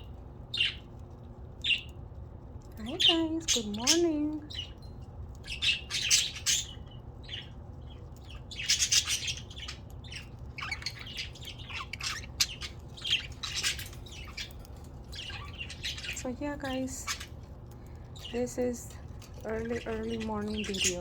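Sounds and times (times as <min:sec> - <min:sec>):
budgerigars chattering: 0:02.8 - 0:04.8, 0:05.5 - 0:07.5, 0:08.3 - 0:17.4, 0:19.5 - 0:21.0.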